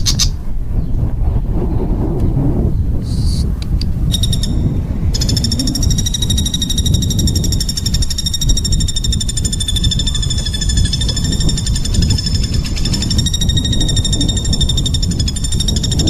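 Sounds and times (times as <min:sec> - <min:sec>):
low rumble: 0:00.3 - 0:16.0
songbird buzzy trill: 0:04.1 - 0:16.0.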